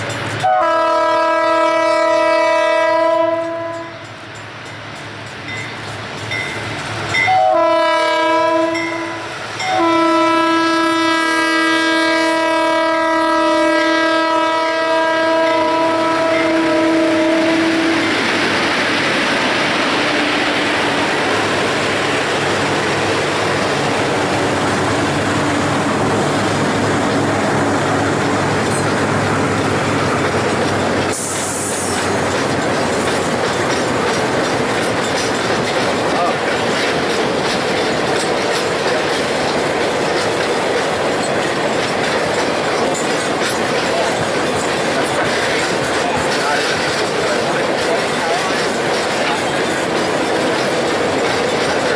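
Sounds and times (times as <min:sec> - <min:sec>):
train wheels clattering on rails: 0:00.0 - 0:51.9
locomotive air horn blasts: 0:00.4 - 0:04.1, 0:07.3 - 0:18.1.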